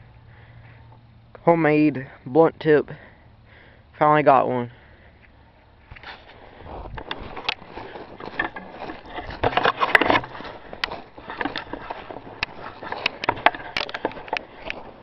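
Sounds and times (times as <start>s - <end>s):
dry brush crunching underfoot: 5.3s - 15.0s.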